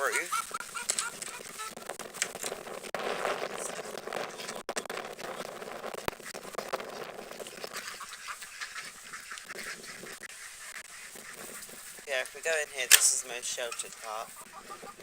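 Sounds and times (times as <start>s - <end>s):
ducks quacking: 0.0s - 2.0s, 6.2s - 15.0s.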